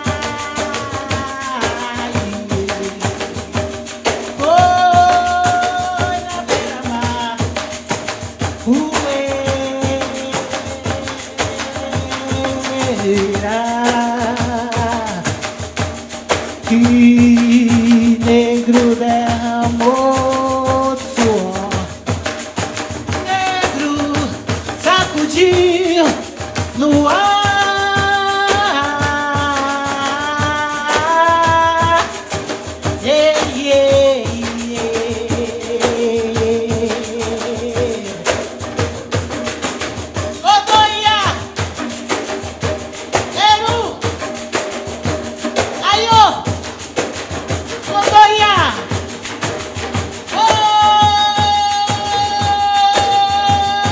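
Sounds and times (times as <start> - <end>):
person singing melody: 0.0 - 15.5, 16.6 - 22.1, 23.2 - 39.4, 50.2 - 53.9
frame drums with jingles: 0.0 - 53.9.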